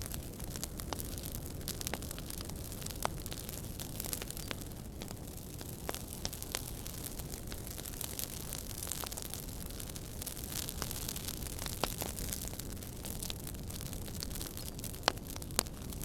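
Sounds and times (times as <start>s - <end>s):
fire pops and snaps: 0.0s - 16.0s
low rumble of flames: 0.0s - 16.0s.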